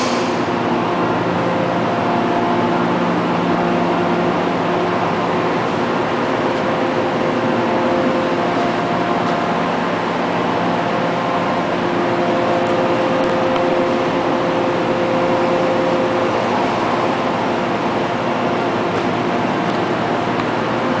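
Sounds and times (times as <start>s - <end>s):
hiss: 0.0s - 0.5s
machine mechanical drone: 0.0s - 21.0s.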